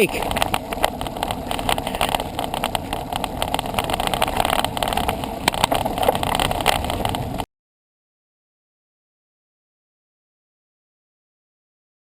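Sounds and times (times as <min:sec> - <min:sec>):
bicycle road rumble: 0:00.0 - 0:07.5
wind over microphone: 0:00.0 - 0:07.5.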